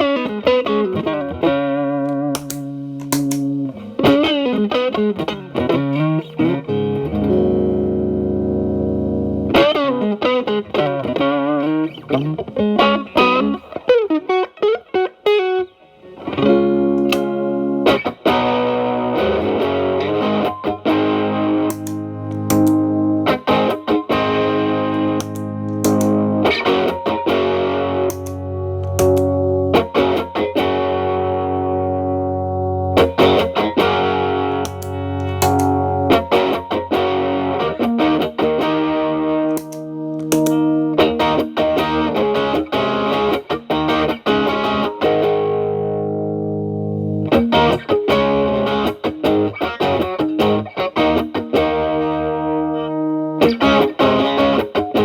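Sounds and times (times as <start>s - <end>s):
overdriven electric guitar: 0.0s - 55.0s.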